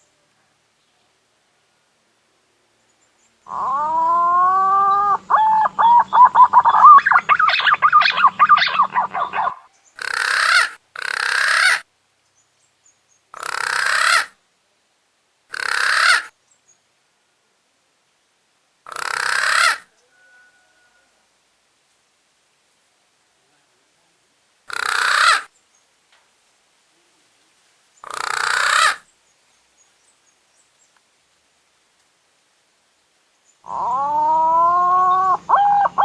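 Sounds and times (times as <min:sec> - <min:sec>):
short hoarse bird calls: 0:03.4 - 0:11.8, 0:15.5 - 0:16.3, 0:18.9 - 0:21.1, 0:24.7 - 0:25.5, 0:28.0 - 0:29.1
pigeon whistled call: 0:03.8 - 0:09.6.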